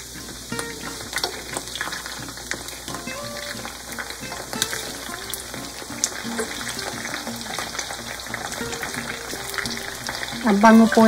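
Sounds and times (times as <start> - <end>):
background music: 0.0 - 11.0
chicken sizzling in oil: 0.0 - 11.0.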